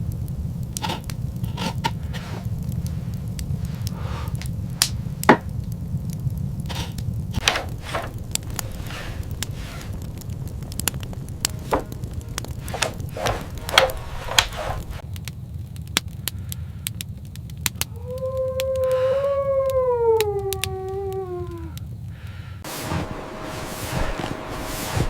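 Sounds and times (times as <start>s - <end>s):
low rumble: 0.0s - 23.4s
sharp crackles: 0.0s - 24.6s
wolf howling: 17.8s - 21.9s.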